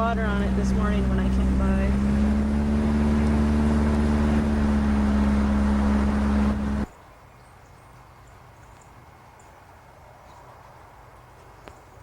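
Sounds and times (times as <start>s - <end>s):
car engine and road noise: 0.0s - 6.9s.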